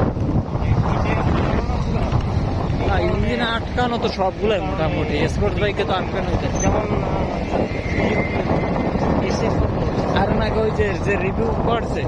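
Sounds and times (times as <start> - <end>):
motorcycle running: 0.0 - 12.0
wind buffeting microphone: 0.0 - 12.0
faint high whine: 6.5 - 9.4.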